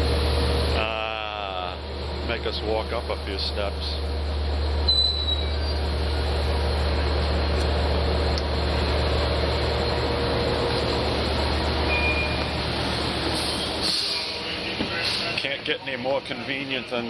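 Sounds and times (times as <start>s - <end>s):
diesel train humming: 0.0s - 17.0s
short high squeal: 4.8s - 5.9s.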